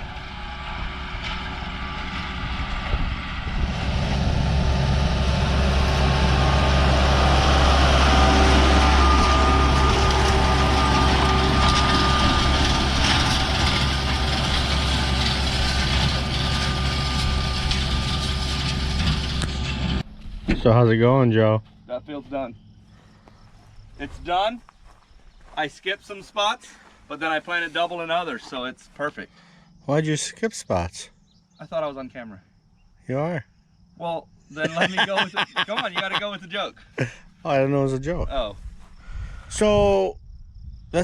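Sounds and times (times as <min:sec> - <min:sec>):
tractor engine running under load: 0:00.0 - 0:21.9.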